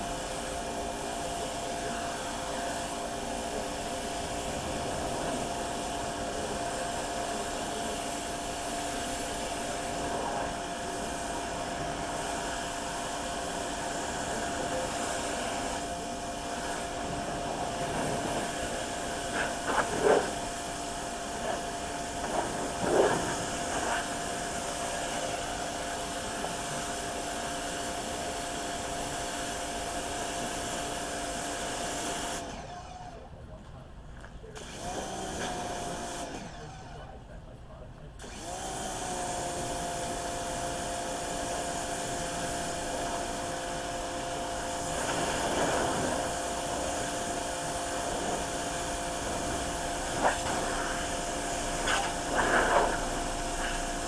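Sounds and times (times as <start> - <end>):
electric power tool whining hum: 34.6 - 37.1, 38.2 - 54.0.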